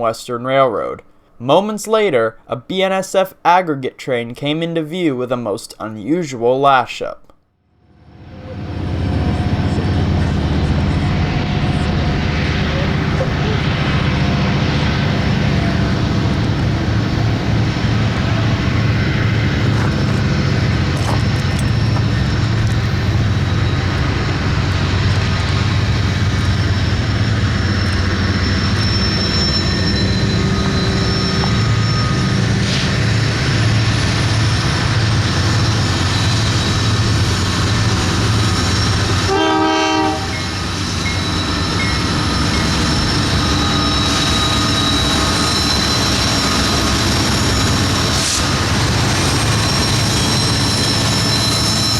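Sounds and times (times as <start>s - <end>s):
locomotive engine rumble: 7.9s - 51.9s
train wheels rolling: 8.1s - 51.9s
train horn: 39.2s - 41.3s.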